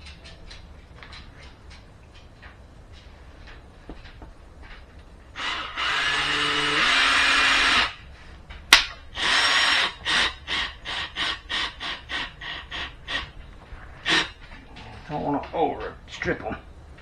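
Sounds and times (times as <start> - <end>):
power drill driving screws: 5.4 - 8.0.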